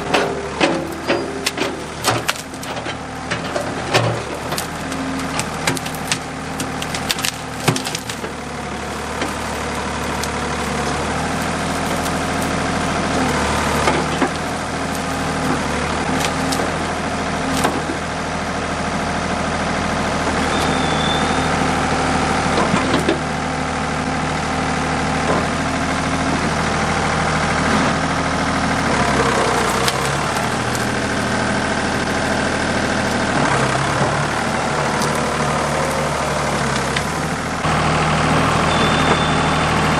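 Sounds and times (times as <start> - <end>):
sharp cracks and knocks: 0.0 - 18.1, 28.8 - 37.7
diesel engine running: 0.0 - 39.9.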